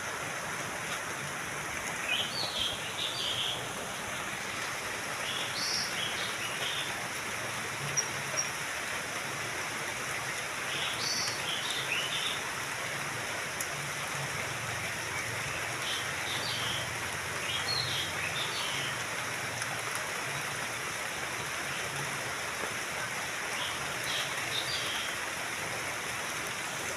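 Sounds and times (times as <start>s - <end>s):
running water: 0.0s - 26.9s
small birds chirping: 1.7s - 7.0s, 10.3s - 12.4s, 14.7s - 19.0s, 23.5s - 25.2s.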